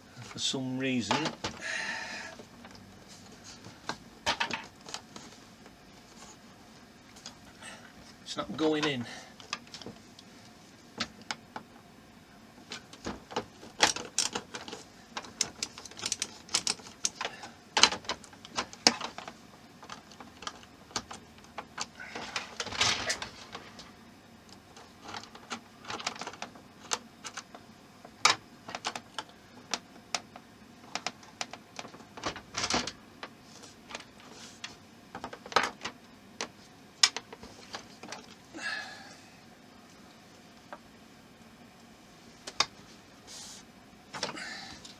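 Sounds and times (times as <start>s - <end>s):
model parts clicking and tapping: 13.8s - 19.3s.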